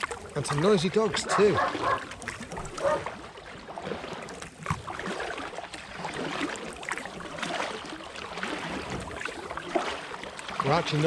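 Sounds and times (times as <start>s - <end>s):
kayak paddle splashing water: 0.0s - 11.0s.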